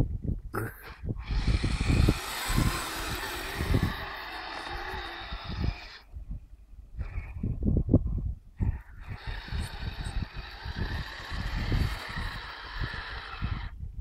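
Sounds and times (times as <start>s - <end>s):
toy vehicle electric motor whirring: 1.2s - 6.1s, 8.8s - 13.8s.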